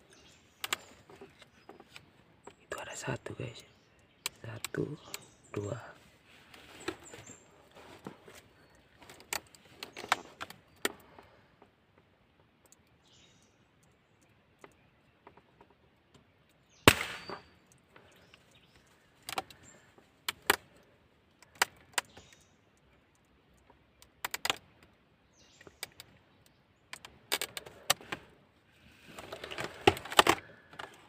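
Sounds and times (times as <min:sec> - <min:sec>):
sharp clicks and knocks: 0:13.8 - 0:22.4, 0:23.1 - 0:28.3, 0:29.2 - 0:31.0.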